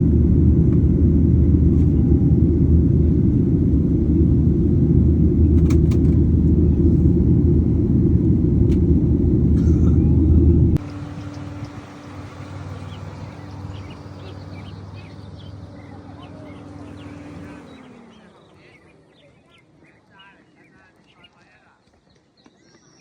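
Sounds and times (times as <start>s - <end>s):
loud low rumble: 0.0s - 17.8s.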